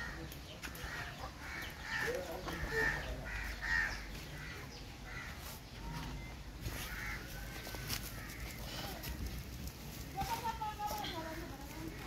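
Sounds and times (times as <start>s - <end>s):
bird calling: 0.0s - 9.2s.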